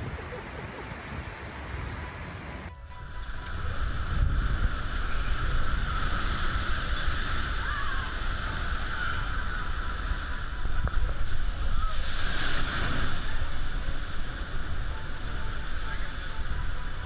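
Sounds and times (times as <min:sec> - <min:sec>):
sea waves breaking: 0:00.0 - 0:17.0
wind: 0:00.0 - 0:17.0.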